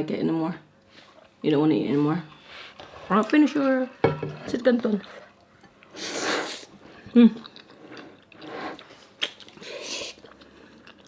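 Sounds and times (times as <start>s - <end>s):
person chewing food: 5.1s - 11.0s.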